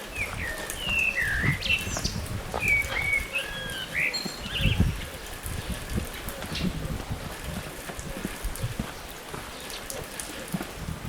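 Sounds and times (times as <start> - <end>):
songbird whistled chirps: 0.2 - 4.8.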